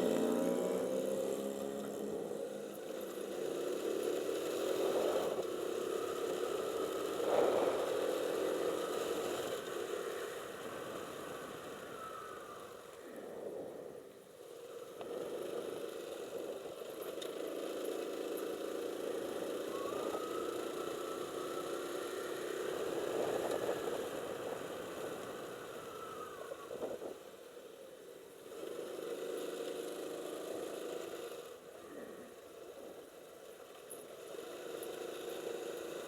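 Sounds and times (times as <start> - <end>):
motorcycle engine running: 0.0 - 12.0
faint high whine: 0.0 - 15.2, 15.9 - 28.3.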